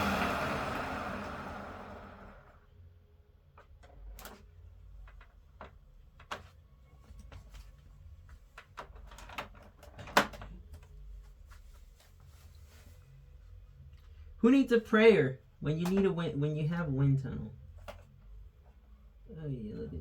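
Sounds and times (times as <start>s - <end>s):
plastic parts clicking and knocking: 8.6s - 10.8s.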